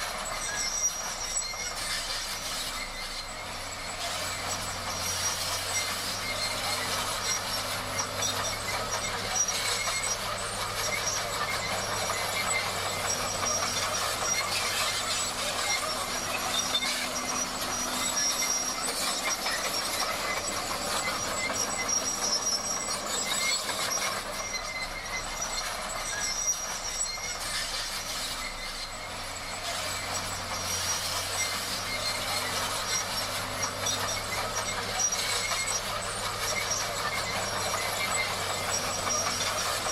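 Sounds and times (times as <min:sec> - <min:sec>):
bulldozer engine hum: 0:00.0 - 0:39.9
steel tracks clattering and squealing: 0:00.0 - 0:39.9.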